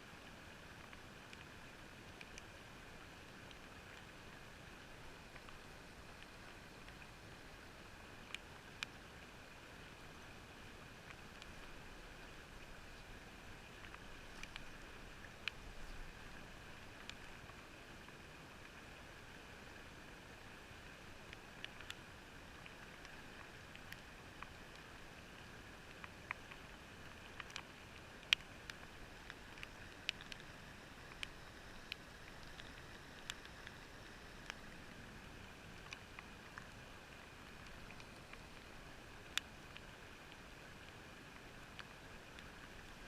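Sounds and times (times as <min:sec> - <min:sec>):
faint steady hiss: 0:00.0 - 0:43.0
sharp clicks and ticks: 0:27.3 - 0:34.7.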